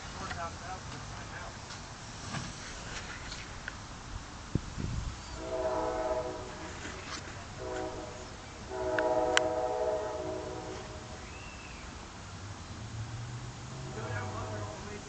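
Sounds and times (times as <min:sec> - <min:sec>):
horn blasts: 0:05.4 - 0:11.6, 0:13.7 - 0:15.0.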